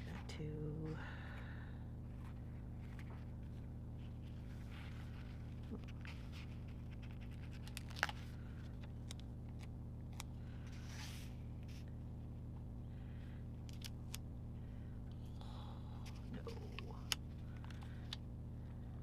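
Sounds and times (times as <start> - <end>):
low electrical hum: 0.0 - 19.0
paper rustle: 4.2 - 8.9.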